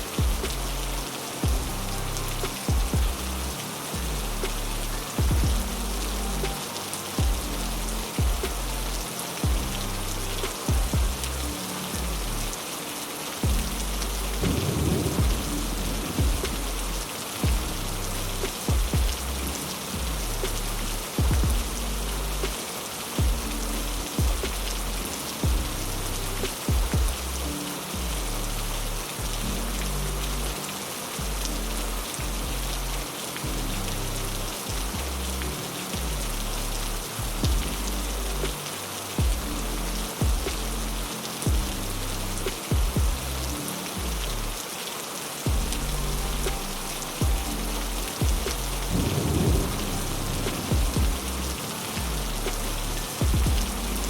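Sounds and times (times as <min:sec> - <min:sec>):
sharp low thumps: 0:00.0 - 0:06.2, 0:07.2 - 0:12.3, 0:13.4 - 0:22.6, 0:23.2 - 0:27.4, 0:37.2 - 0:38.6, 0:39.2 - 0:41.8, 0:42.4 - 0:44.3, 0:45.5 - 0:54.0
heavy rain falling: 0:00.0 - 0:54.0
slow low sustained music: 0:00.0 - 0:54.0.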